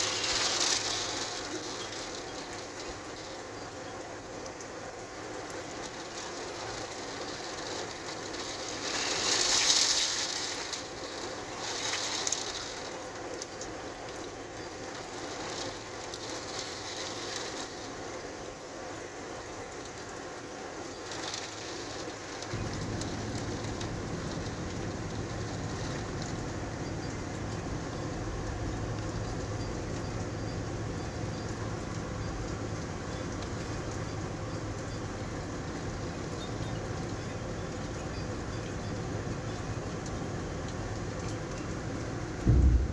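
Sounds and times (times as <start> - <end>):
rain and wind hissing: 0.0 - 42.9
low steady rumble: 22.5 - 42.9.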